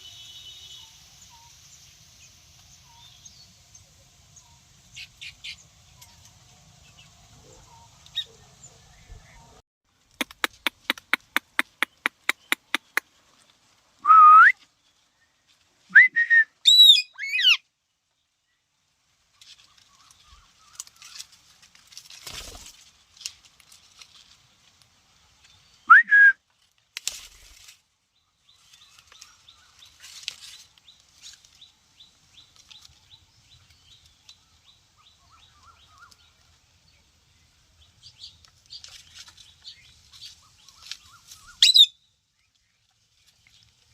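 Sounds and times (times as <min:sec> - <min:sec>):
parakeet whistling and calling: 0:16.6 - 0:17.6, 0:41.5 - 0:42.0.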